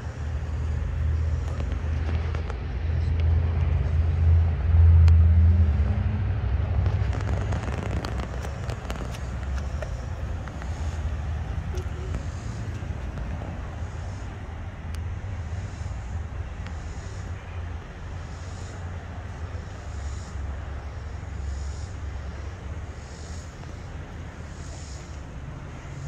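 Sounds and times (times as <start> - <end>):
car engine idling: 0.0 - 26.0
sharp ticks or pops: 6.7 - 17.3.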